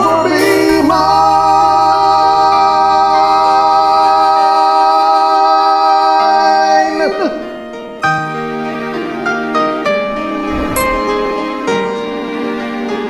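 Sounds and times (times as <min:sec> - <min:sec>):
person singing a long note: 0:00.0 - 0:07.0.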